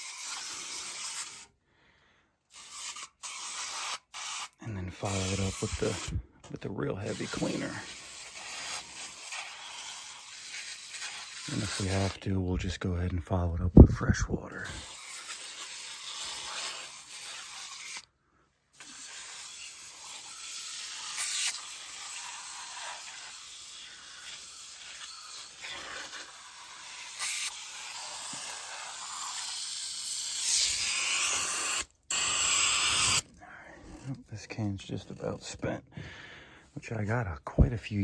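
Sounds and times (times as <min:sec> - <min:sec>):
aerosol can spraying: 0:02.5 - 0:06.2, 0:07.0 - 0:12.2, 0:14.7 - 0:18.1, 0:18.8 - 0:33.3.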